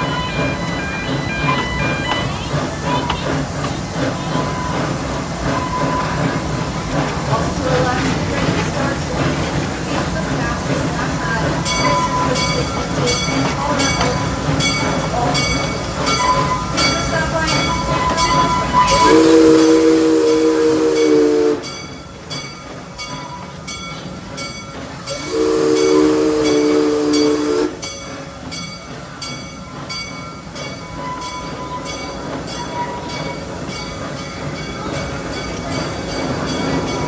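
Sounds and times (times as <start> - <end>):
train chime whistle: 0.0 - 3.2, 11.7 - 22.0, 25.0 - 28.6
train wheels clicking: 0.0 - 37.0.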